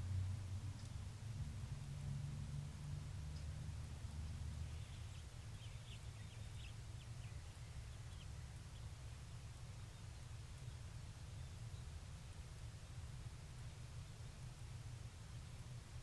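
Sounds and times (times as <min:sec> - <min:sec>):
steady low hum: 0:00.0 - 0:16.0
faint bird chirps: 0:04.2 - 0:12.1.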